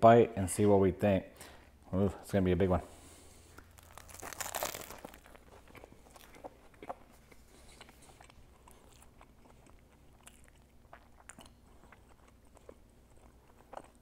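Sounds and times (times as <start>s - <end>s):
chewing mouth clicks and smacks: 5.6s - 14.0s.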